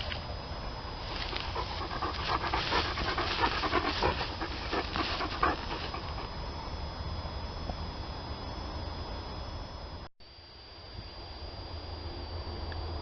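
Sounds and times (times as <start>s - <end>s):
dog panting: 1.2s - 6.4s.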